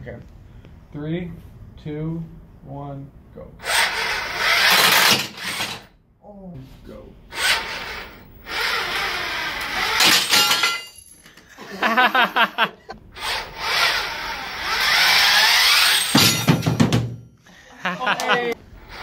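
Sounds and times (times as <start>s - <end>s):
robot electric motors running: 3.6s - 5.9s, 7.3s - 10.3s, 13.2s - 16.2s
mechanical clatter: 4.5s - 5.9s.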